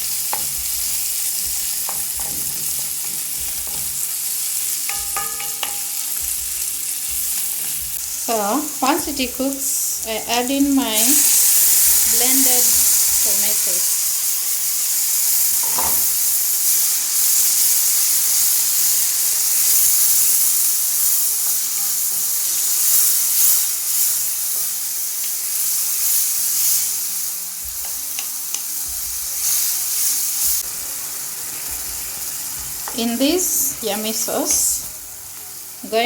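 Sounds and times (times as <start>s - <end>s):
sauce sizzling in a pan: 0.0s - 36.0s
spoon scraping a pan: 0.2s - 6.6s.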